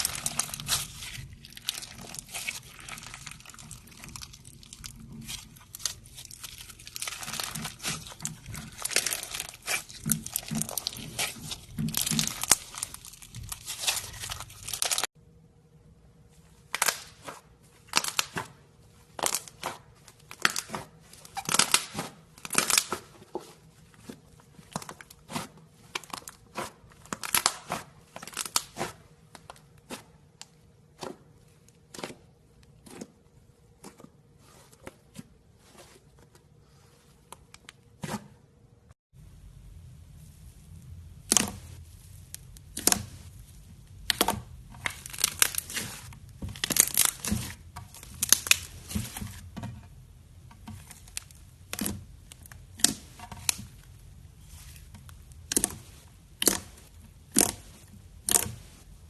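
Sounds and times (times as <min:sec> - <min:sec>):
slime crackling and popping: 0:00.0 - 0:15.1, 0:41.2 - 0:49.2, 0:50.7 - 0:58.8.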